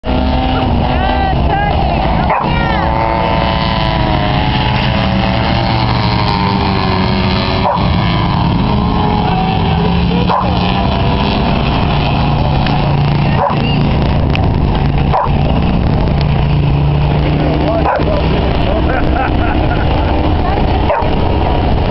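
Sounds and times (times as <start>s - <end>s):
race truck engines running hard: 0.0s - 21.9s.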